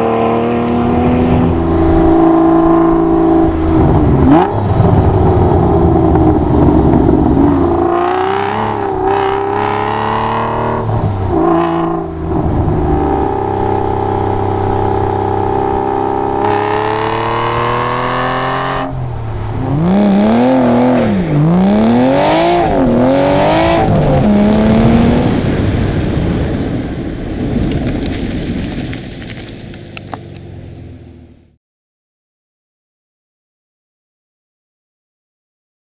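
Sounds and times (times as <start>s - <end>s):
car engine revving: 0.0s - 26.8s.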